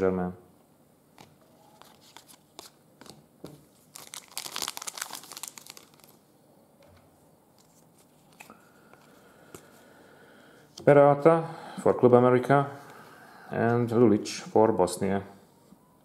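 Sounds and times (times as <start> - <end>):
plastic packaging crinkling: 1.6 - 6.2.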